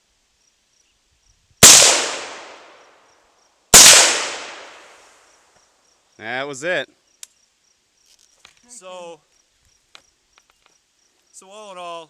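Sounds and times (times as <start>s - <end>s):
crickets chirping: 0.0s - 12.0s
rifle shots echoing: 1.6s - 2.8s, 3.8s - 5.0s.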